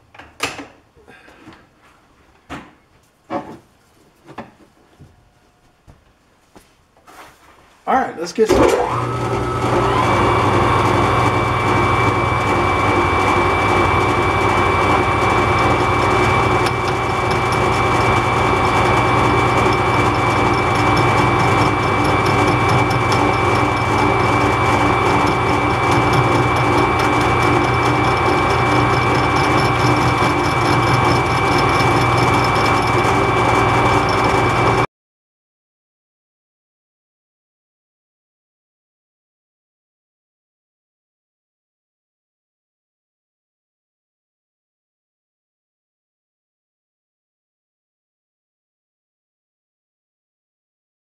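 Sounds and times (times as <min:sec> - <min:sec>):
metal lathe humming and whining: 0:08.6 - 0:34.8.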